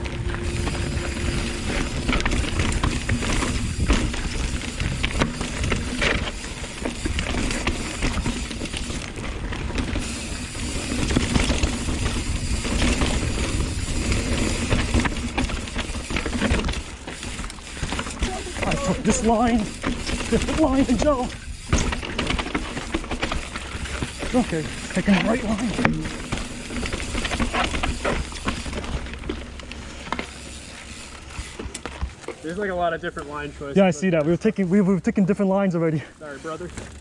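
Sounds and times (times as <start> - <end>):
wind rumble on microphone: 0.0 - 6.1
mountain bike rattling over rocks: 0.0 - 35.3, 36.1 - 37.0.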